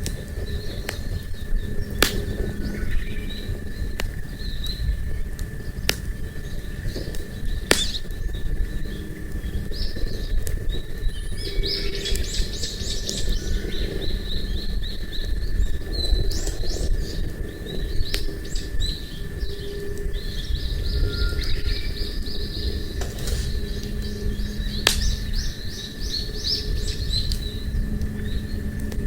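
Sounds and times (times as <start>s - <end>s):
campfire crackling and popping: 0.0s - 11.1s, 14.0s - 20.2s, 22.9s - 29.0s
small birds chirping: 0.0s - 29.0s
steady low rumble: 0.0s - 29.0s.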